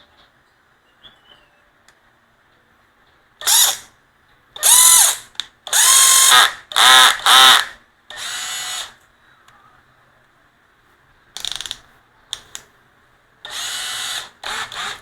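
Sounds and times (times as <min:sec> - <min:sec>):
cordless drill motor whining: 0:04.6 - 0:08.9, 0:13.5 - 0:15.0.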